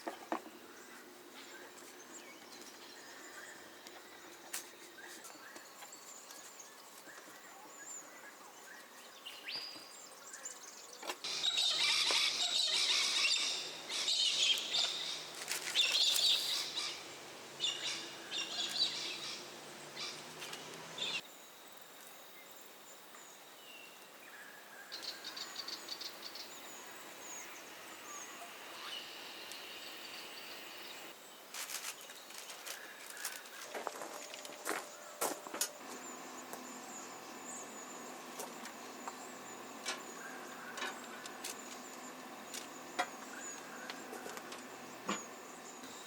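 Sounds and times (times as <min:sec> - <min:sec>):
birds calling and chirping: 0:00.0 - 0:21.2, 0:23.2 - 0:46.0.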